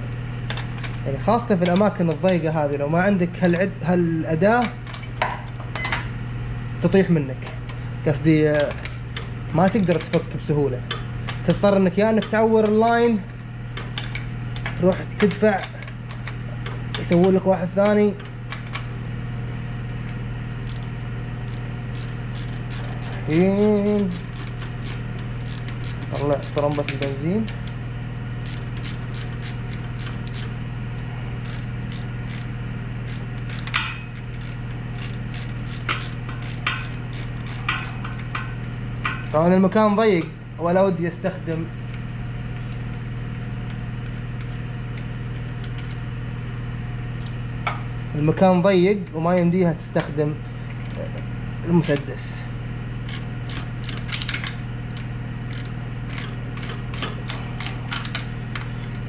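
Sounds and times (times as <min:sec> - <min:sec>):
steady low hum: 0:18.8 - 0:41.8
ratchet wrench clicking: 0:20.6 - 0:27.1, 0:28.4 - 0:30.6, 0:31.4 - 0:40.0, 0:50.8 - 0:51.2, 0:51.8 - 0:52.1, 0:53.1 - 0:54.5, 0:55.5 - 0:58.1.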